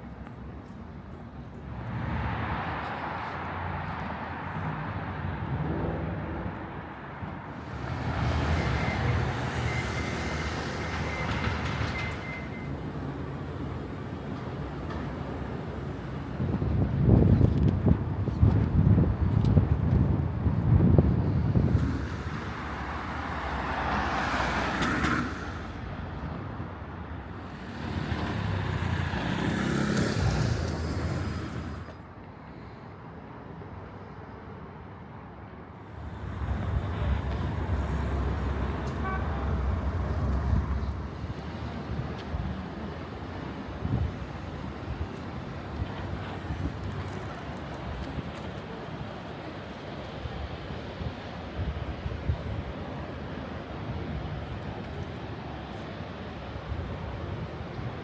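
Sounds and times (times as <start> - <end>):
urban street ambience: 0.0 - 58.0
car passing: 27.2 - 32.0, 35.8 - 41.9
vehicle passing: 27.4 - 31.9.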